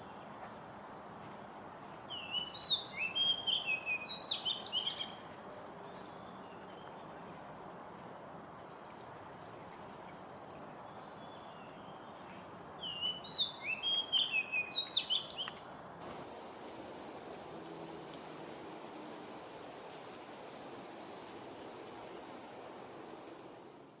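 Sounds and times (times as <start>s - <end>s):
high insect buzzing: 16.0s - 24.0s
loud high-toned insect drone: 16.0s - 24.0s.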